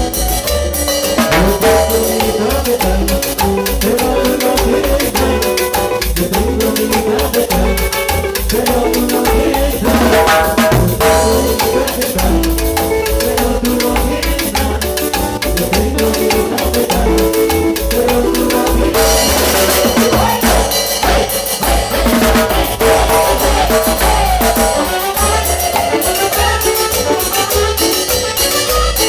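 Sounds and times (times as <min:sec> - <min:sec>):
band playing instrumental music: 0:00.0 - 0:29.0
cymbals: 0:09.8 - 0:14.4, 0:18.5 - 0:29.0.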